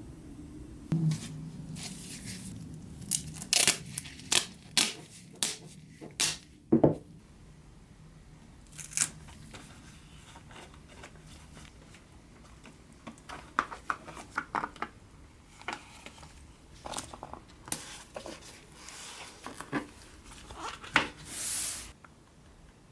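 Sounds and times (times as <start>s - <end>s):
faint low hum: 0.0s - 13.4s
sheet material snipping and tearing: 3.1s - 5.6s, 8.7s - 9.2s.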